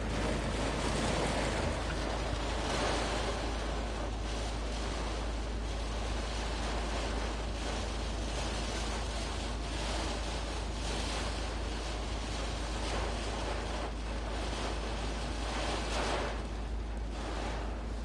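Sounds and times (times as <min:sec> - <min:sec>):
wind buffeting microphone: 0:00.0 - 0:08.9
heavy rain pouring: 0:00.0 - 0:18.0.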